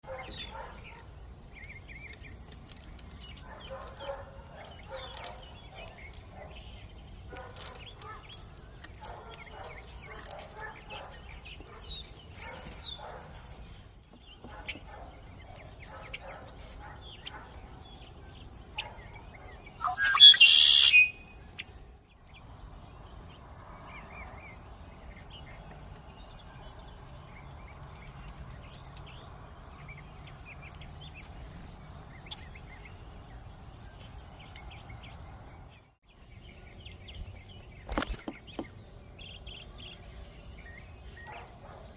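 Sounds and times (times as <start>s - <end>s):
birds chirping and calling: 0.0s - 41.9s
loud bird call: 19.8s - 21.3s.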